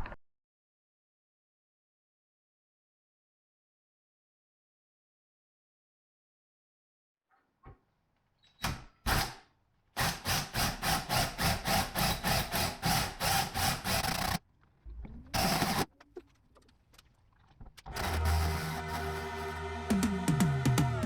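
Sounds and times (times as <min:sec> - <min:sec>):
power drill bursts: 0:10.0 - 0:14.4, 0:15.4 - 0:15.9, 0:17.9 - 0:19.6.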